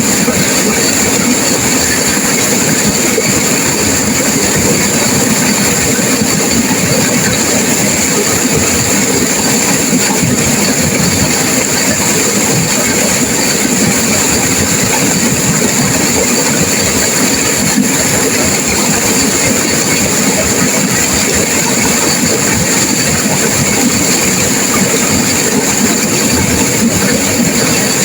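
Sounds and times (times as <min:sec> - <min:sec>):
river water rushing over rocks: 0:00.0 - 0:28.0.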